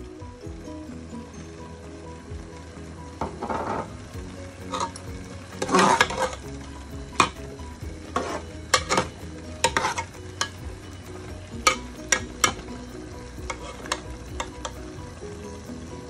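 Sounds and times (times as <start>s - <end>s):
meat sizzling: 0.0s - 16.0s
ladle scraping metal pot: 3.2s - 14.9s.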